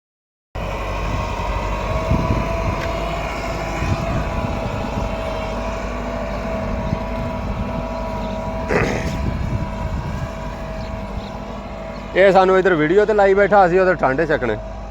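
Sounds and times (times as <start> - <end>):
tractor diesel engine rumbling: 0.6 - 14.9.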